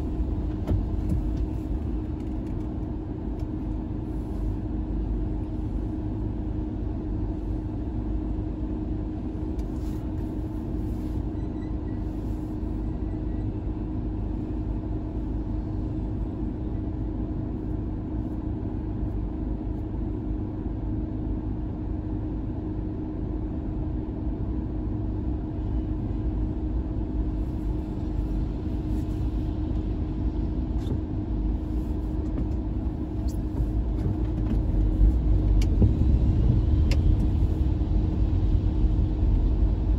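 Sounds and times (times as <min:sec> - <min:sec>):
car engine low rumble: 0:00.0 - 0:39.9.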